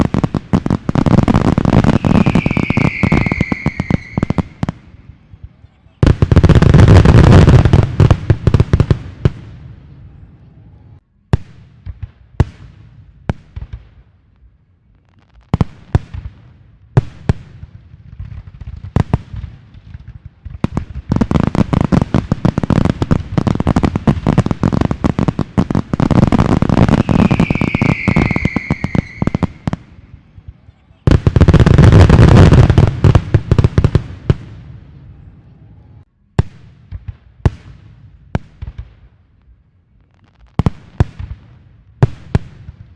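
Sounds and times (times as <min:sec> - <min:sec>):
fireworks bangs: 0:00.0 - 0:10.2, 0:15.2 - 0:39.2
fireworks crackling barrage: 0:00.0 - 0:42.9
falling whistle: 0:01.9 - 0:04.6, 0:26.9 - 0:29.6.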